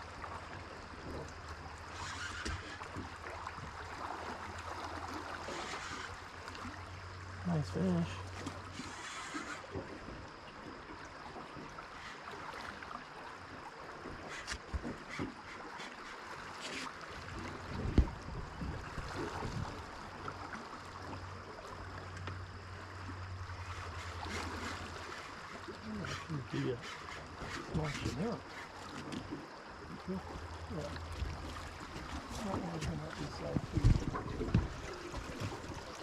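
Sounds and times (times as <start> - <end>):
water rushing: 0.0 - 36.0
wind noise: 17.5 - 19.8, 32.8 - 35.8.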